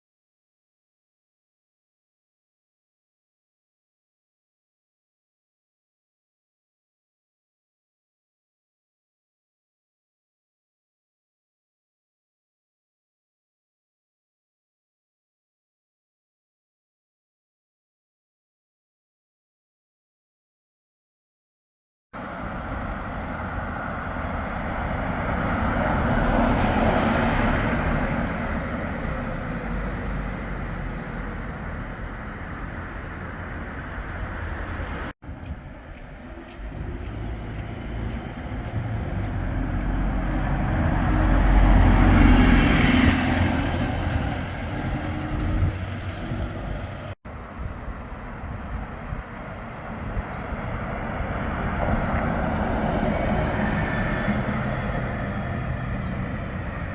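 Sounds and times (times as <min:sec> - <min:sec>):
large vehicles passing: 0:22.2 - 0:56.9.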